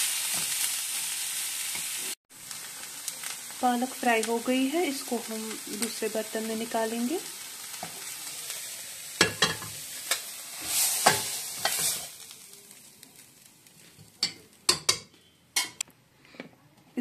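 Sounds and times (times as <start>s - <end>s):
food sizzling in a pan: 0.0s - 15.8s
metal spatula scraping a pan: 7.8s - 12.2s.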